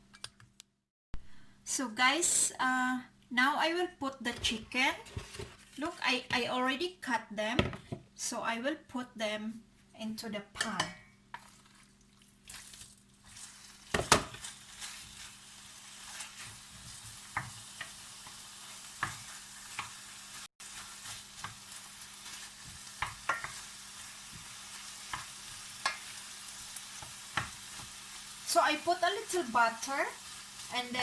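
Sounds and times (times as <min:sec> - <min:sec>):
meat sizzling in a pan: 0:12.3 - 0:31.0.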